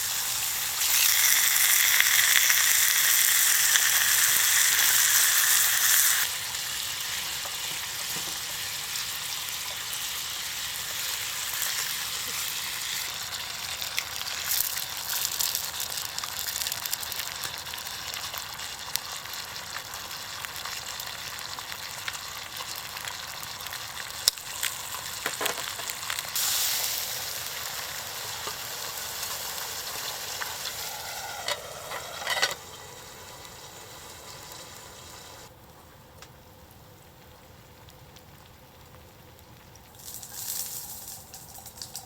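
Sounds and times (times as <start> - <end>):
food sizzling in a frying pan: 0.0 - 35.5, 36.9 - 42.0
scraping: 30.7 - 32.7.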